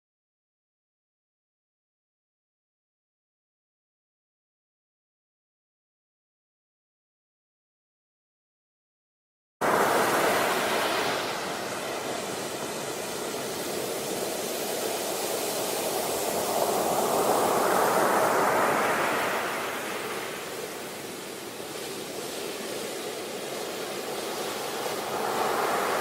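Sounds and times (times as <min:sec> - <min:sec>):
steady rushing noise: 0:09.6 - 0:26.0.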